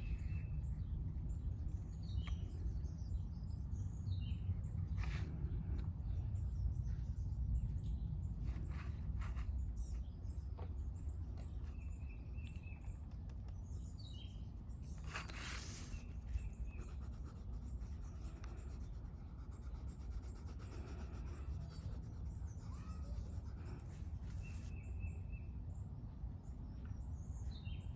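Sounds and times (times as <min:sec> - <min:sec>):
birds chirping: 0:00.0 - 0:27.9
low outdoor rumble: 0:00.0 - 0:27.9
drawing tool scratching paper: 0:14.9 - 0:24.7.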